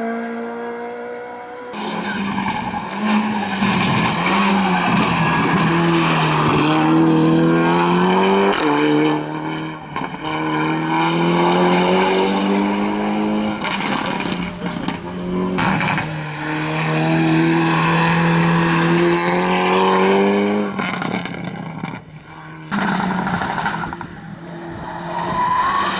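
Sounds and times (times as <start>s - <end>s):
rally car engine revving: 0.0s - 25.9s
tyres squealing: 1.8s - 16.6s.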